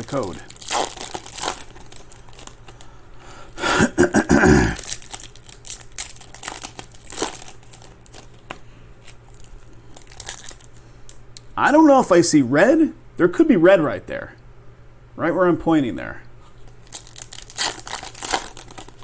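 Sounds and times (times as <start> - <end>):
foil wrappers crinkling and tearing: 0.0 - 3.5, 4.1 - 11.5, 16.6 - 19.0.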